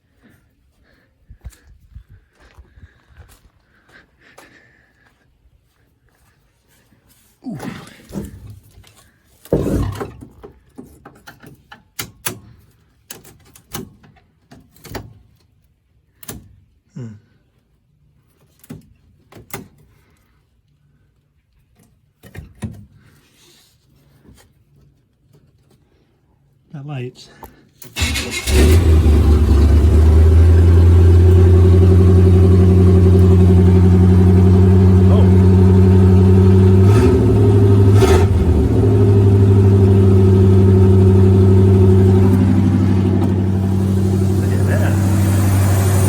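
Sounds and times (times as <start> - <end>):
pickup engine idling: 28.0 - 46.0.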